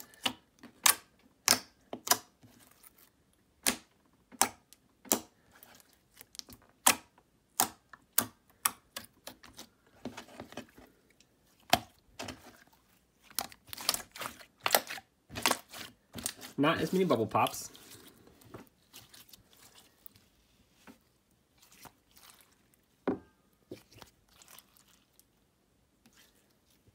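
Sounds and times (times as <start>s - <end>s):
slime squishing: 0.0s - 26.9s
slime clicking: 0.2s - 2.3s.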